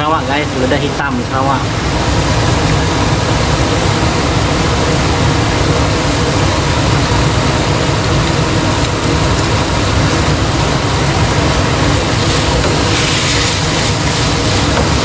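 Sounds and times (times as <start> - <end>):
meat sizzling in a pan: 10.0 - 15.0.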